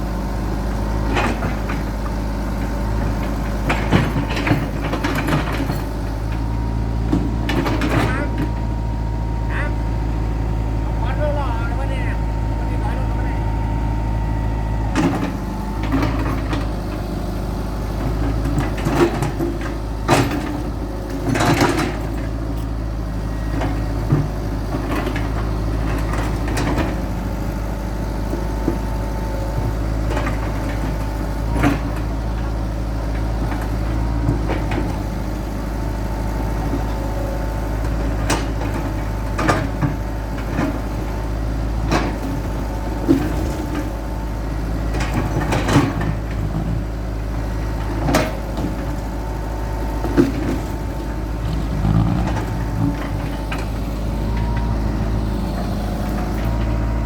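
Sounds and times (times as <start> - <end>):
excavator diesel engine running: 0.0 - 57.0
digging clanks and knocks: 3.0 - 6.5, 7.1 - 8.5, 50.0 - 54.9.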